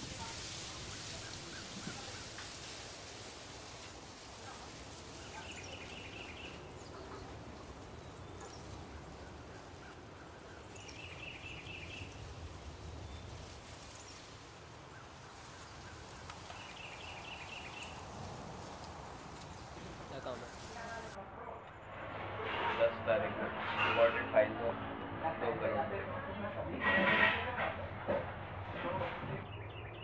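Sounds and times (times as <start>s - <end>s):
outdoor background noise: 0.0s - 30.0s.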